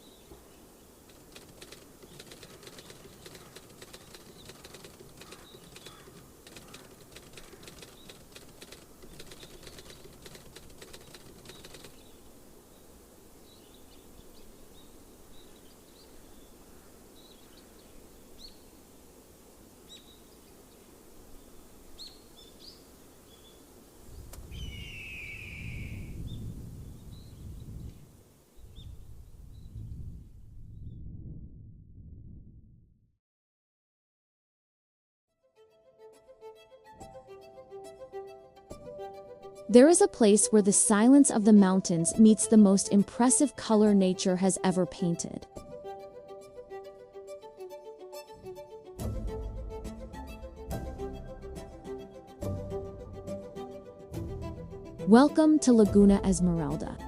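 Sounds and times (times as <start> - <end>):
rapid crackling clicks: 1.0 - 12.3
trilled bird call: 1.4 - 12.2, 24.5 - 26.2
short bird chirps: 24.5 - 26.4
low rumble: 29.1 - 33.0.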